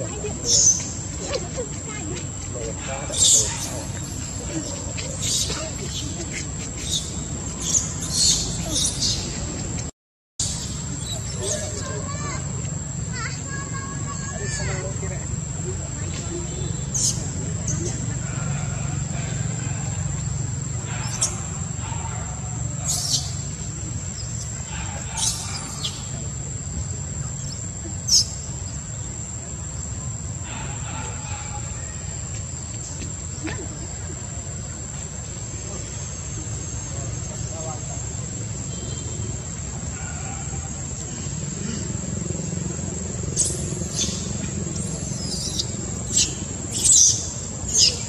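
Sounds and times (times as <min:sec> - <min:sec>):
monkey squeaks: 0:05.0 - 0:09.4.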